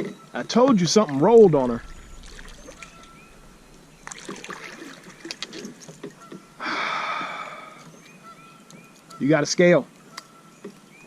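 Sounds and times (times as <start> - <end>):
rush of noise: 1.2 - 7.2.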